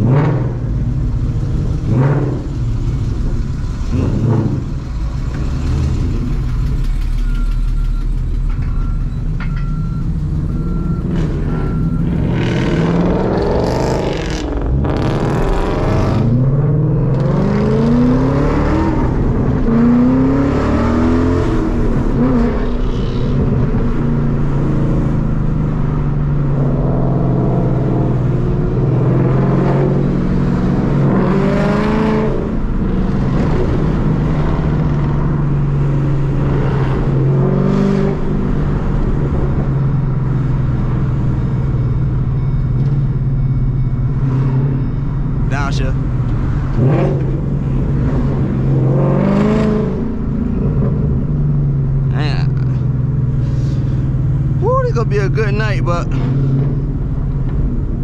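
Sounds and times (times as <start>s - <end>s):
car engines accelerating: 0.0s - 58.0s
electronic beep: 7.0s - 14.4s, 39.7s - 46.2s.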